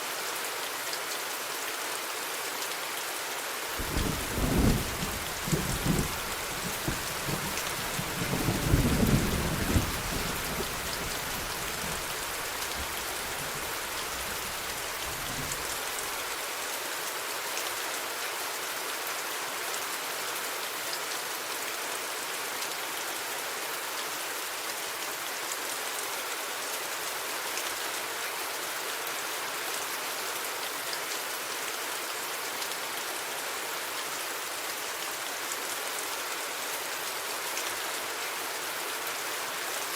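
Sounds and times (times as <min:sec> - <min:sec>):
rain hissing down: 0:00.0 - 0:39.9
thunder rumbling: 0:03.8 - 0:15.7.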